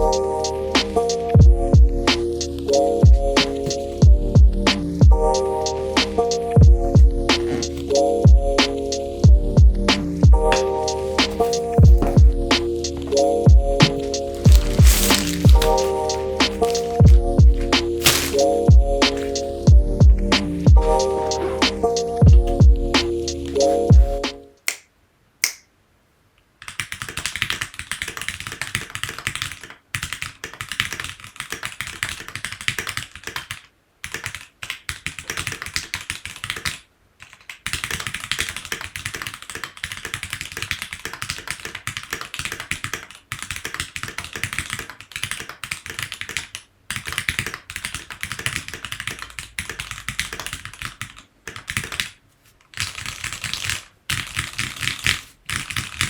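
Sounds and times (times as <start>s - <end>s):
mechanical keyboard typing: 26.6s - 56.0s.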